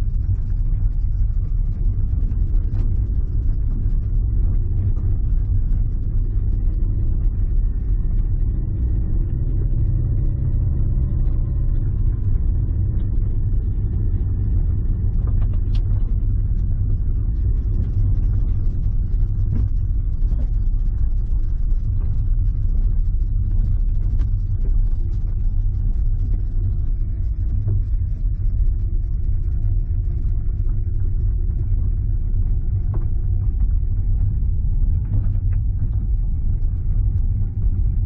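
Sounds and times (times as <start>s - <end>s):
steady low rumble: 0.0s - 38.0s.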